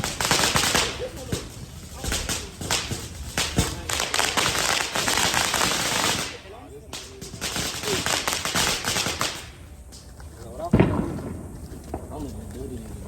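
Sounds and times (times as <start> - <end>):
firecrackers popping: 0.0 - 13.0.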